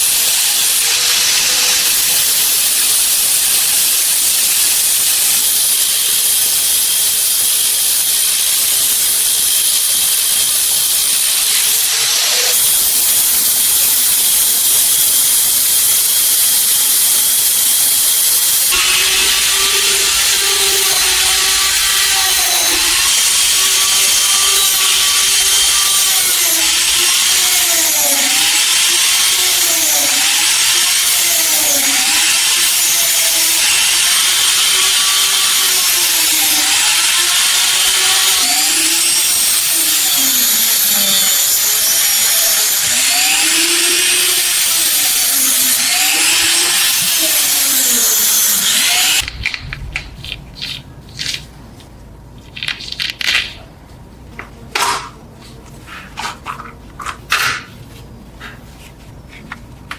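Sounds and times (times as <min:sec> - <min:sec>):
loud steady hiss: 0:00.0 - 0:23.8
power tool grinding knife: 0:00.0 - 0:51.5.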